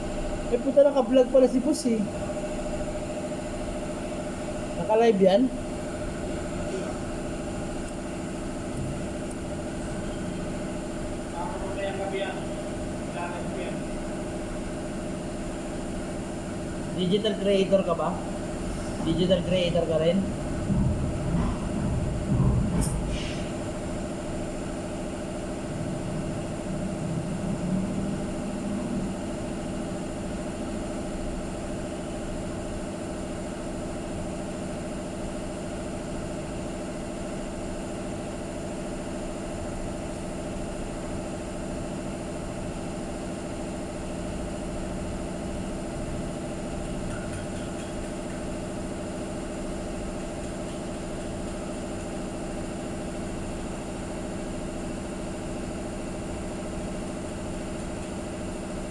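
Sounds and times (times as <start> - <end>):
motor humming: 5.6 - 11.2.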